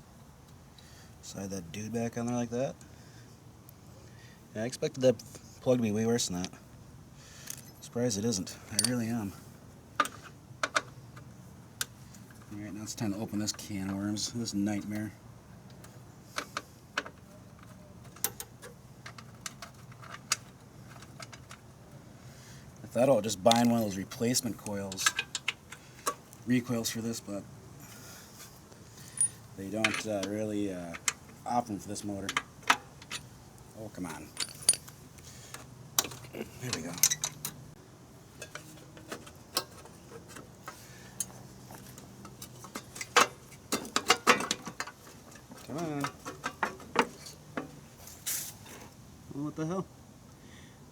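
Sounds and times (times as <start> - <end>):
faint steady hum: 0.0 - 50.9
metallic clicks of tools: 8.7 - 9.0, 24.6 - 26.2.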